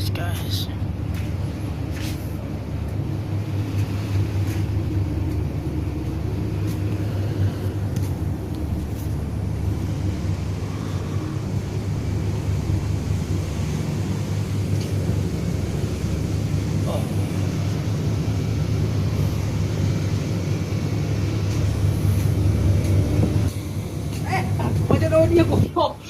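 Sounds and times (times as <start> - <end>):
ship engines rumbling: 0.0 - 26.0.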